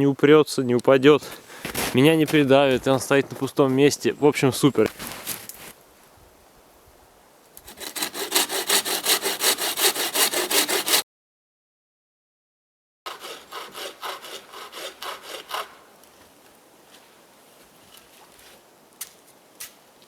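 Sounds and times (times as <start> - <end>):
bow saw cutting wood: 7.6 - 11.0, 13.1 - 15.9.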